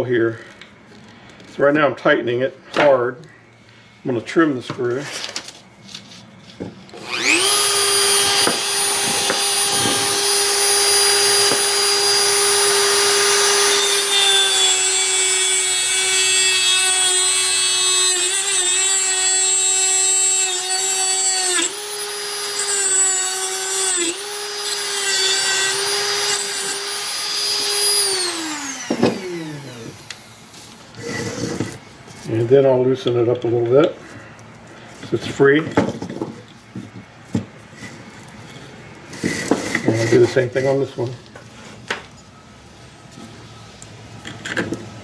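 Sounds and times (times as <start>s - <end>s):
rotary tool high whine: 6.9s - 31.8s.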